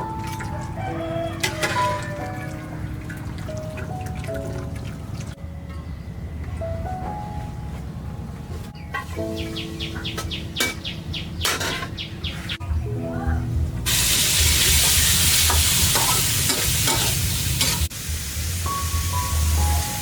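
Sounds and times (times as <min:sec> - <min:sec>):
birds chirping: 0:08.8 - 0:12.6
food sizzling in hot oil: 0:13.9 - 0:20.0.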